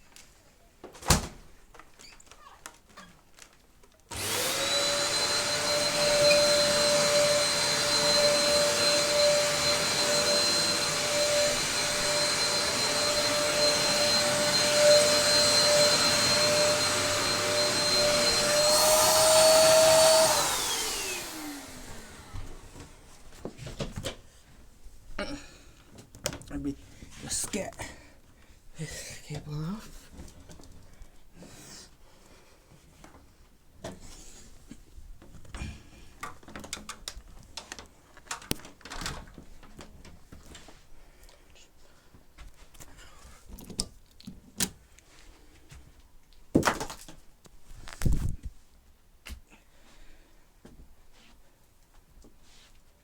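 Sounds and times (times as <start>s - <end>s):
vacuum cleaner running: 4.1s - 23.5s
motor winding down: 4.2s - 22.3s.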